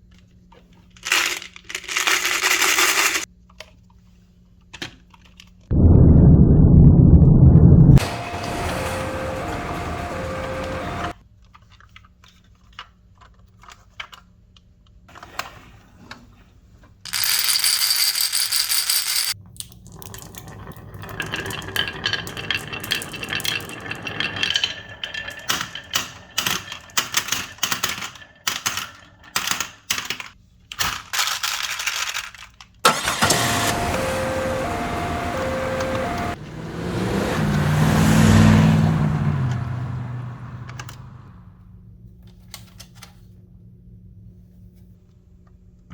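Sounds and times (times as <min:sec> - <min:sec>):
swelling whoosh: 0:05.7 - 0:11.1
marbles clacking through marble run: 0:17.1 - 0:30.3.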